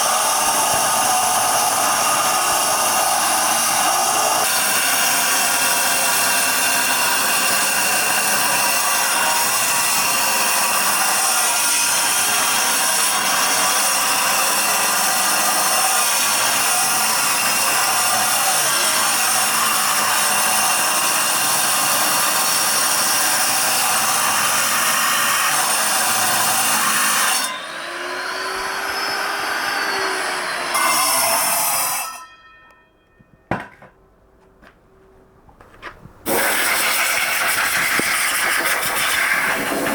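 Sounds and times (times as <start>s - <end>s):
power tool grinding stone: 0.0s - 32.2s, 36.3s - 39.9s.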